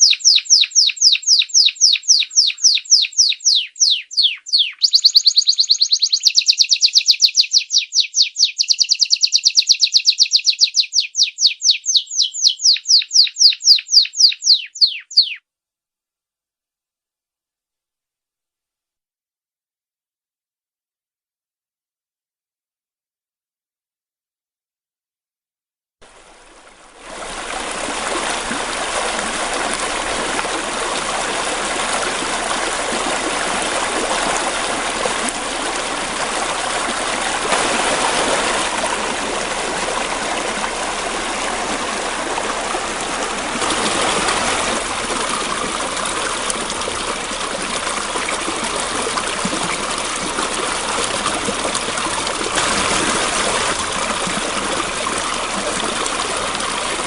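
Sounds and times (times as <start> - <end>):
flowing water rushing: 26.0 - 57.0.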